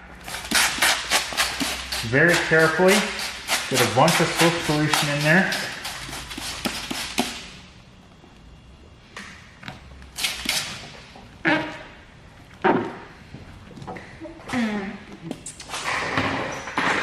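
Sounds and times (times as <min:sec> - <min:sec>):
spray bottle hissing sprays: 0:00.3 - 0:07.4.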